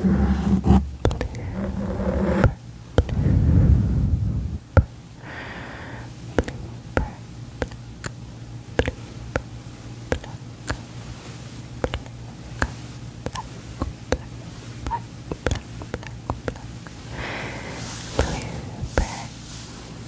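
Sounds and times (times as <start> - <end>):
loud low noise: 3.1 - 4.7.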